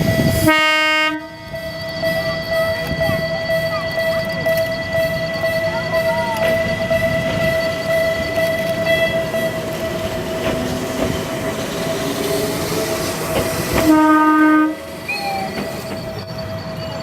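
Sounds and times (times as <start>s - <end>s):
train hum and rumble: 0.0s - 17.0s
locomotive horn blast: 0.4s - 1.6s, 2.2s - 10.3s, 13.7s - 15.6s.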